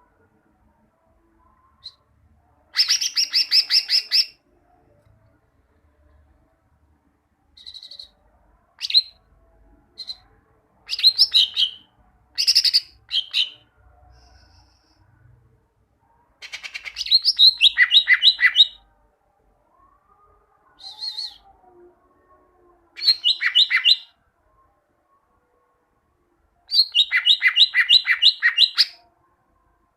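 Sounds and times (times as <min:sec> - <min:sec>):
bird singing chirps and whistles: 0:02.8 - 0:04.4, 0:07.6 - 0:08.1, 0:10.9 - 0:11.8, 0:12.4 - 0:13.6, 0:16.4 - 0:18.8, 0:20.8 - 0:21.4, 0:23.0 - 0:24.1, 0:26.7 - 0:29.0.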